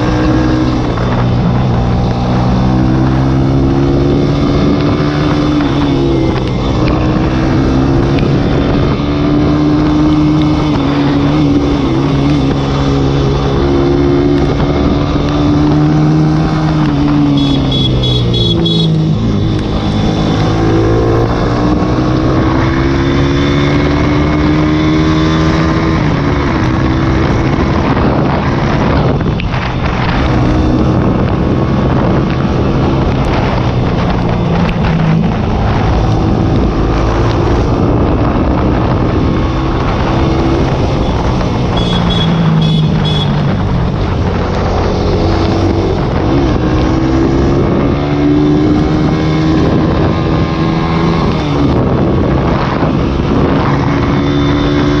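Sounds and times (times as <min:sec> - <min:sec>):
motorcycle engine revving: 0:00.0 - 0:55.0
wind on microphone: 0:00.0 - 0:55.0.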